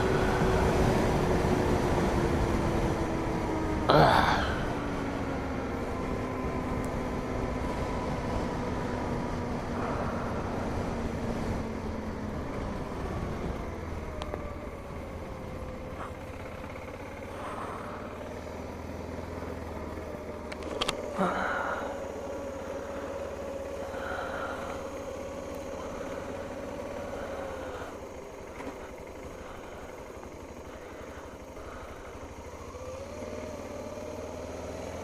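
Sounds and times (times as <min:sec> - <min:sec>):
motorcycle engine running: 0:00.0 - 0:35.0
wind rumble on microphone: 0:05.9 - 0:16.1.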